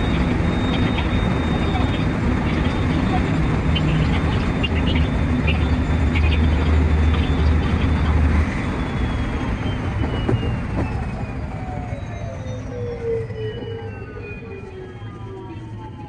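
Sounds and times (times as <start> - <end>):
rail clatter and clicks: 0.0 - 11.4
electric train hum: 0.0 - 16.0.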